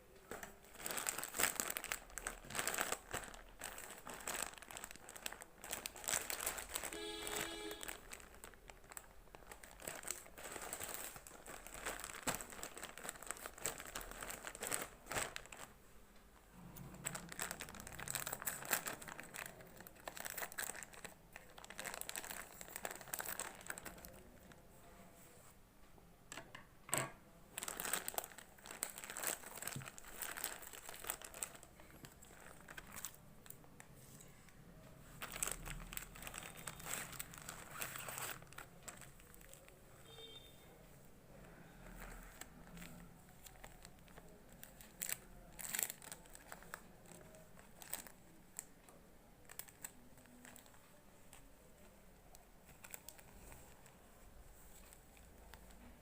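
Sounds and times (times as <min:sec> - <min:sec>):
plastic packaging crinkling: 0:00.2 - 0:15.8, 0:16.8 - 0:24.6, 0:27.5 - 0:34.4, 0:35.1 - 0:40.5, 0:41.5 - 0:56.0.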